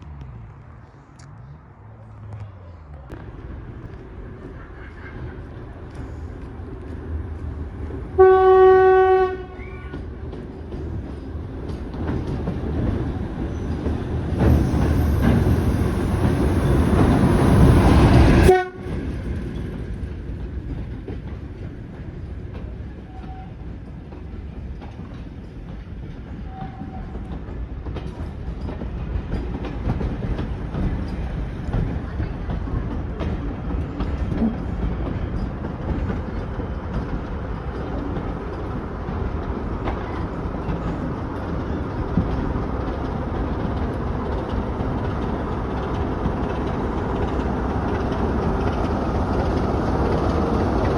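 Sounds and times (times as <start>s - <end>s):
train rumbling past: 0.0s - 50.9s
diesel locomotive horn blast: 8.2s - 9.9s, 16.2s - 19.1s.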